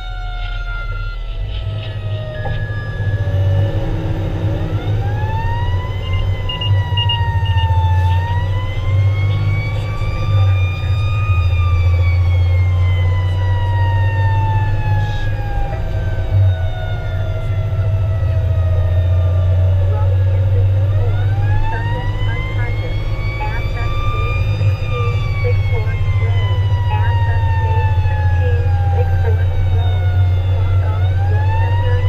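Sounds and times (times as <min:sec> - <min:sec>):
fire engine siren wailing: 0:00.0 - 0:32.0
truck engine rumble and road noise: 0:00.0 - 0:32.0
short high beeps: 0:06.1 - 0:07.8.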